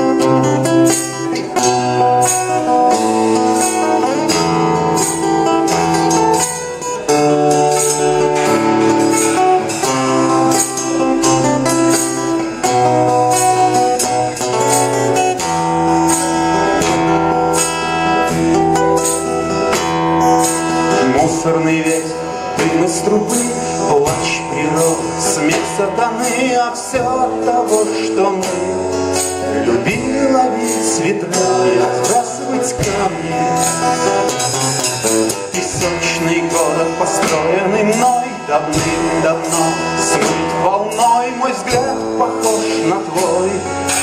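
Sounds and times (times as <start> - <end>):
live rock band playing: 0.0 - 44.0
sustained guitar chords: 0.0 - 44.0
drum beat and cymbals: 32.0 - 44.0.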